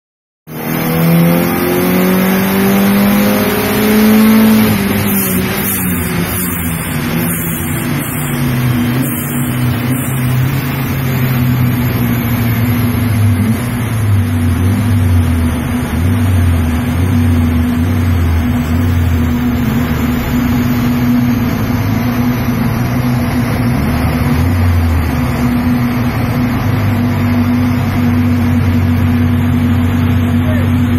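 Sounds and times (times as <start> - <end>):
car engine running at low revs: 0.5 - 30.9.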